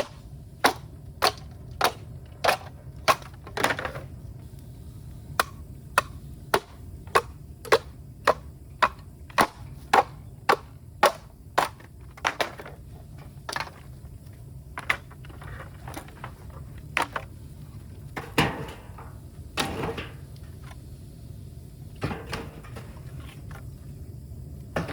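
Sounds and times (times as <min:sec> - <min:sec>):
bamboo being chopped: 0:00.0 - 0:03.4, 0:05.4 - 0:12.7.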